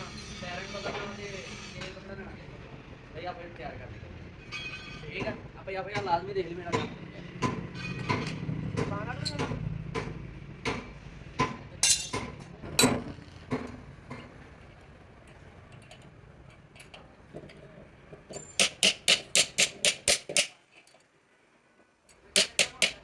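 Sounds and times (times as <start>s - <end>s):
sharp metal knocks: 4.5s - 14.4s, 18.3s - 20.6s, 22.3s - 23.0s
hammer tapping on metal: 5.2s - 14.3s, 18.6s - 20.6s, 22.3s - 23.0s.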